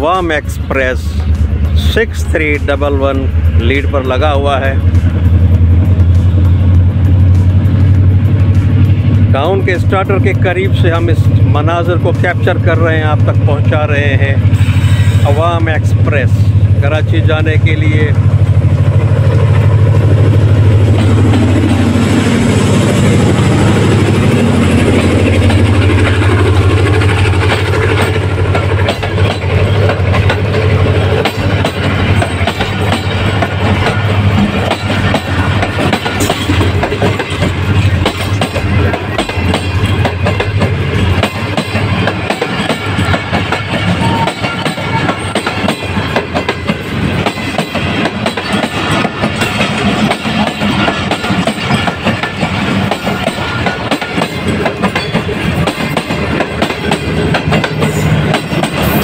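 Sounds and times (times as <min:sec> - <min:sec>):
diesel locomotive engine drone: 0:00.0 - 0:59.0
train wheels clattering over rail joints: 0:17.7 - 0:59.0.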